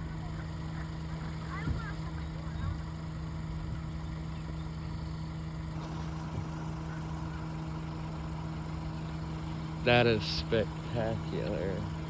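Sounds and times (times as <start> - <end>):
engine idling: 5.4 - 12.0.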